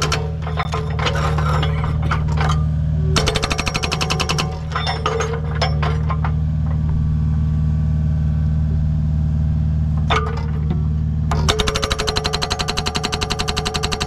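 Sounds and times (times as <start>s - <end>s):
excavator diesel engine running: 0.0s - 14.0s
hydraulic breaker rapid hammering: 3.2s - 4.8s, 11.3s - 14.0s.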